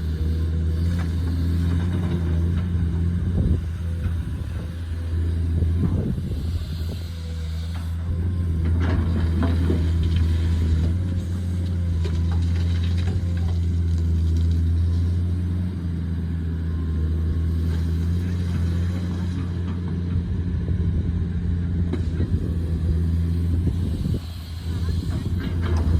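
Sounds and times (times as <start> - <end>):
excavator diesel engine humming: 0.0 - 25.9.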